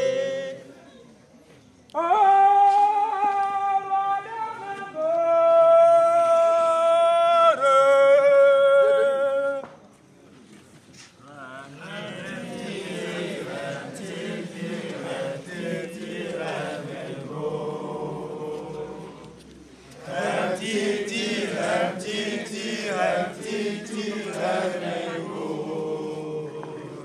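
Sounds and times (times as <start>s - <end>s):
group of voices singing: 0.0s - 0.6s, 11.4s - 27.0s.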